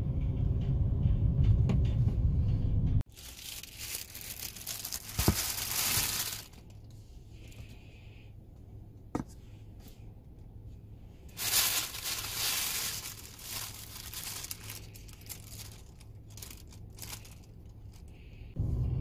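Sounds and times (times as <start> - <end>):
low steady hum: 0.0 - 19.0
crinkling and rustling: 3.1 - 7.8, 11.3 - 18.3.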